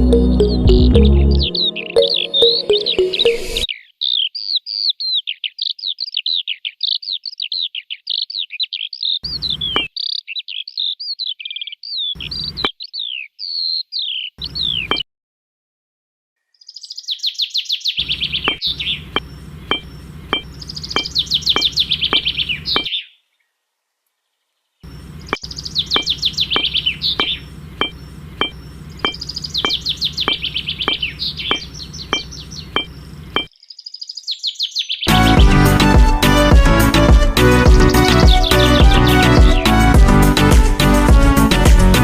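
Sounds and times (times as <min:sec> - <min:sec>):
birds chirping in trills: 0:00.0 - 0:15.0, 0:16.4 - 0:41.6
regular ticks: 0:18.5 - 0:22.9, 0:25.3 - 0:33.6.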